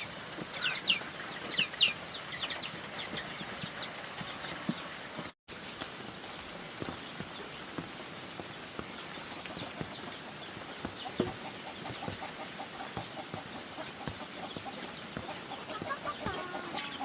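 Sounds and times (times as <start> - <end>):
chickens clucking: 0.0 - 5.3, 8.3 - 17.0
sharp knocks and taps: 7.7 - 16.7.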